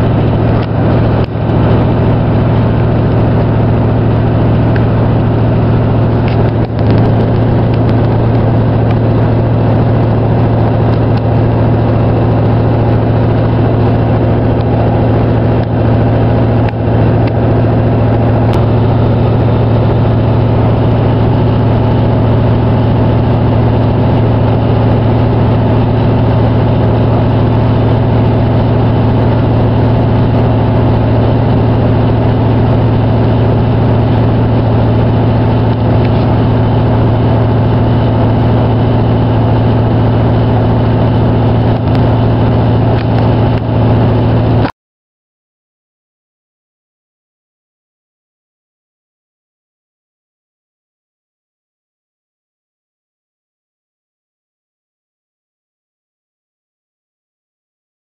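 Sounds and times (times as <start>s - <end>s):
train wheels rumbling on rails: 0.0s - 44.6s
train drive drone: 0.0s - 44.7s.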